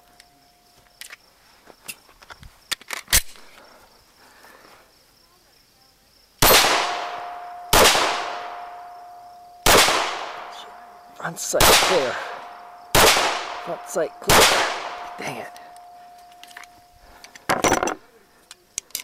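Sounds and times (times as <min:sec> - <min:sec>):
pistol shots with ringing: 0:06.4 - 0:10.9, 0:11.6 - 0:16.6.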